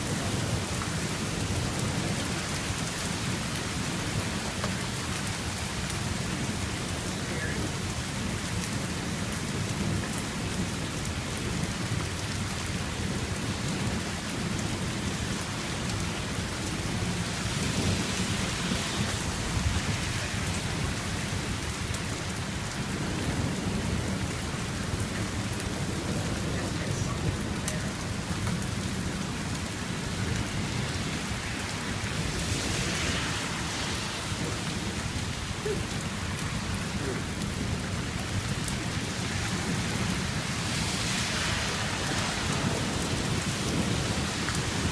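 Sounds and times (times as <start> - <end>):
heavy rain pouring: 0.0 - 44.9
low thunder rumbling: 16.8 - 40.5.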